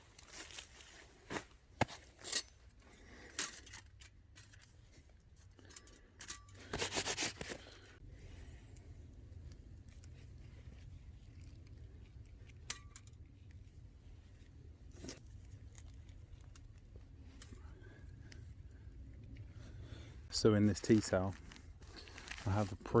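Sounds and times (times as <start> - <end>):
handling rustles: 0.0 - 23.0
faint low rumble: 8.0 - 23.0.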